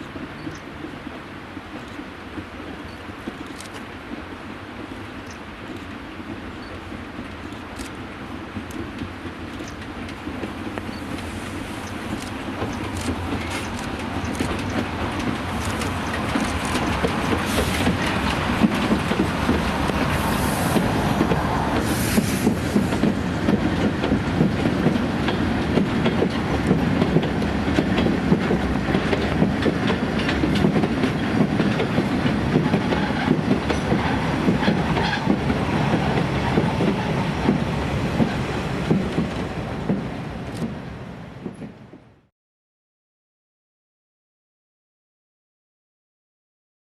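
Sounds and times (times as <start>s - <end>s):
train wheels clattering over rail joints: 0.1s - 40.8s
train wheel squeal: 32.6s - 35.4s.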